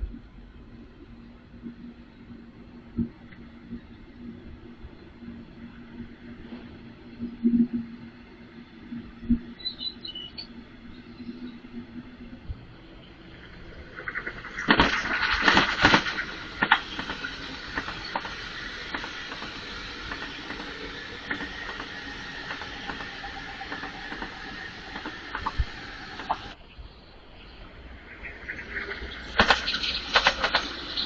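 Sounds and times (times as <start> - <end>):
train rolling on rails: 0.0 - 31.0
wheels clicking over rail joints: 13.2 - 26.6, 28.8 - 31.0.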